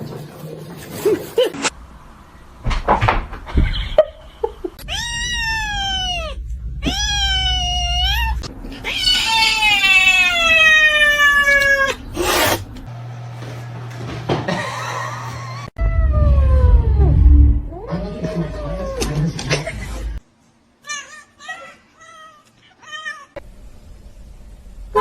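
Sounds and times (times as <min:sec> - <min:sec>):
cat yowling: 0:04.8 - 0:12.6.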